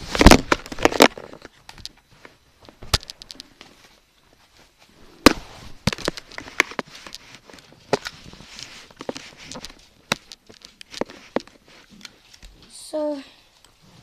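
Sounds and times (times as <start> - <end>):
objects knocking and clicking: 0.0 - 3.7, 5.3 - 12.2
faint rustle: 0.0 - 14.0.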